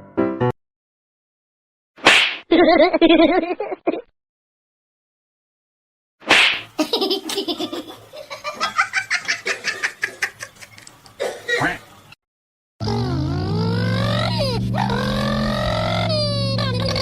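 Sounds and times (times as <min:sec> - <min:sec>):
person laughing hard: 0:06.8 - 0:10.8
loud sliding pitch tone: 0:12.8 - 0:17.0.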